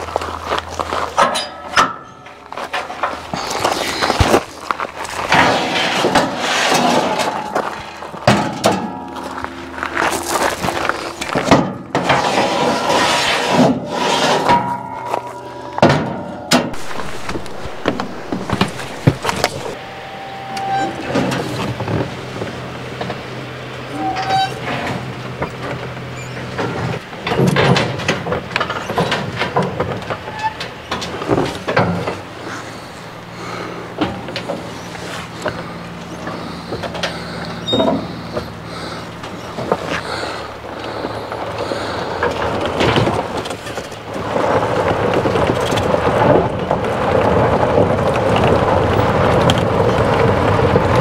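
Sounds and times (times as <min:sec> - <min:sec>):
faint steady whine: 0:00.0 - 0:44.3
golf cart clunks and rattles: 0:00.0 - 0:51.0
vehicle engine humming: 0:00.0 - 0:51.0.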